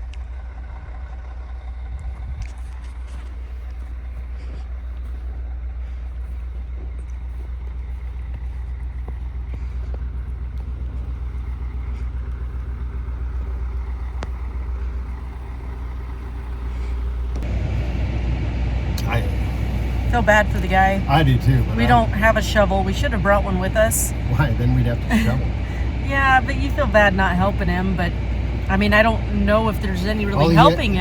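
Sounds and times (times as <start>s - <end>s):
truck engine idling: 0.0s - 31.0s.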